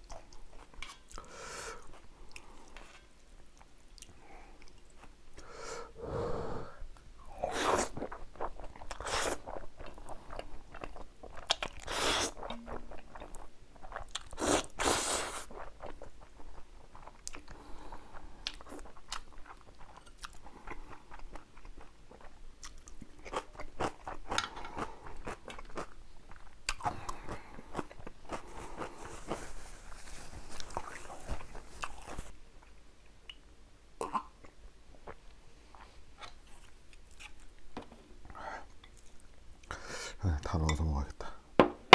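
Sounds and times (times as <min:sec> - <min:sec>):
wet chewing: 0:07.6 - 0:17.6.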